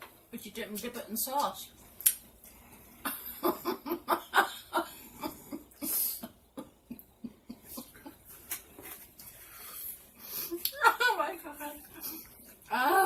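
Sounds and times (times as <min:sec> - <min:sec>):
wet chewing clicks and lip smacks: 0:01.4 - 0:02.6.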